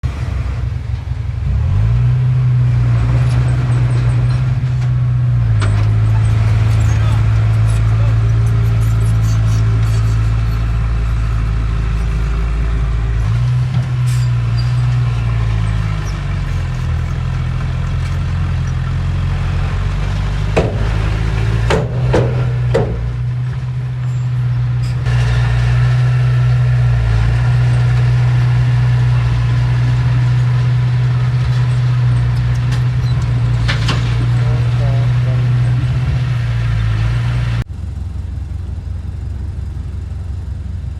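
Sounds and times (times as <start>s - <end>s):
heavy diesel engine running: 0.0s - 40.9s
sharp metallic clanks: 20.5s - 25.5s.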